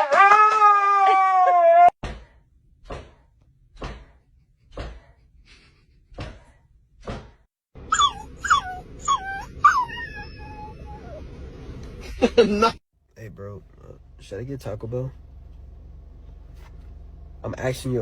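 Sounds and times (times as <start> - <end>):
dog whining: 7.8 - 11.3.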